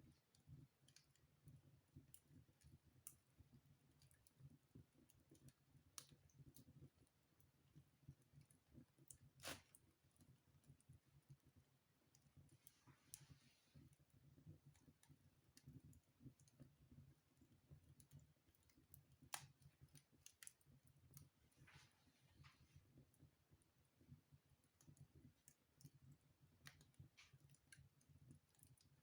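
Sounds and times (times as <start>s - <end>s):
wood fire crackling: 0.0s - 29.0s
fire hissing: 9.4s - 9.7s.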